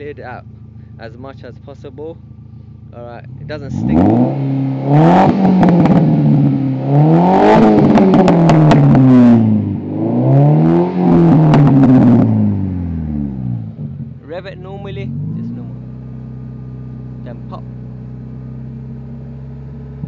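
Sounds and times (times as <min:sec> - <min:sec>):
car engine revving: 0:00.0 - 0:20.0
exhaust cracks: 0:00.0 - 0:20.0.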